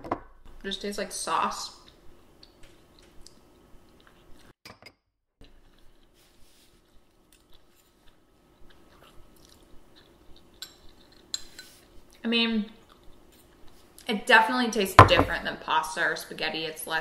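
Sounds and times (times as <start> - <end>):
people chewing noodles: 1.8 - 4.5, 5.4 - 12.2, 12.8 - 14.0.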